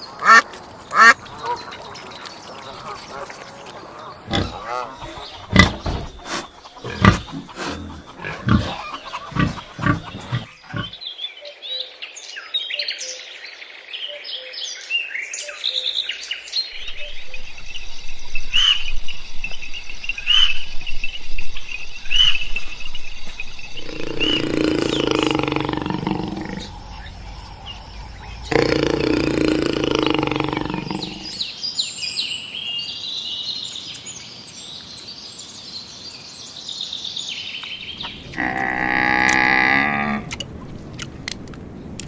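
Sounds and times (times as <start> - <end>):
birds chirping: 0.0 - 11.9, 15.5 - 40.7
animal grunts or snorts: 4.3 - 11.0, 23.8 - 31.4
high bird call: 23.8 - 31.4.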